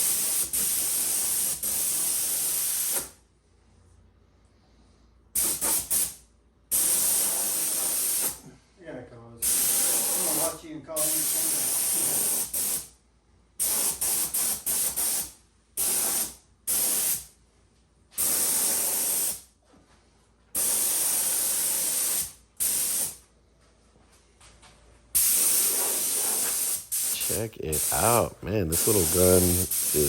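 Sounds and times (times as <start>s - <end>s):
paint spray gun hissing: 25.2s - 30.0s.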